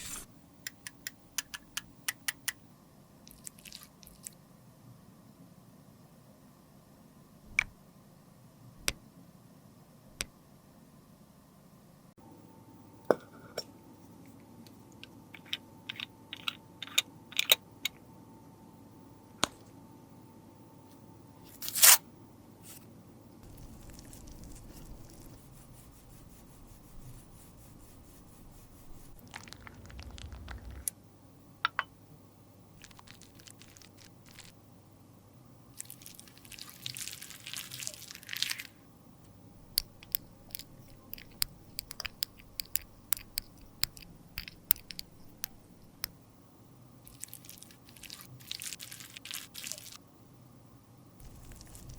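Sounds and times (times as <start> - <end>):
makeup tools clicking and tapping: 0.7 - 2.6, 39.7 - 45.6
crunchy scraping: 28.9 - 30.9, 51.2 - 51.9.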